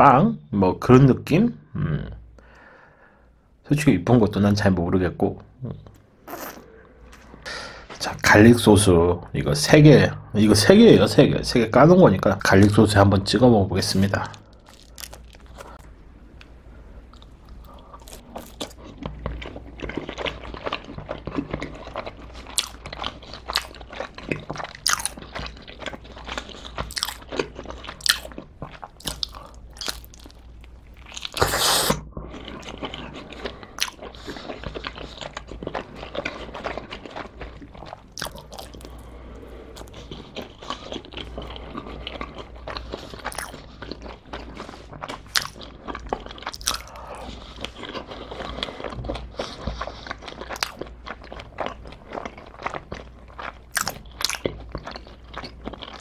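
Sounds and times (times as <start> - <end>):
chewing crisp crust: 13.9 - 31.7, 32.3 - 56.0.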